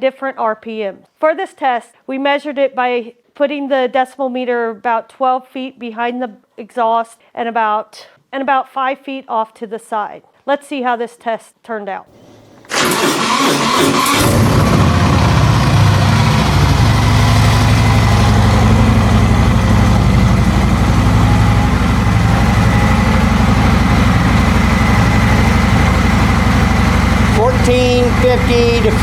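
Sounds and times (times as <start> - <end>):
motorcycle engine starting and idling: 12.1 - 29.0.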